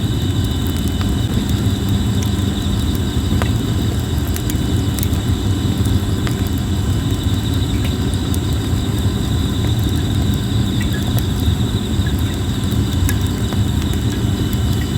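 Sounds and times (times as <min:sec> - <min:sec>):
campfire crackling and popping: 0:00.0 - 0:14.9
insects trilling: 0:00.0 - 0:14.9.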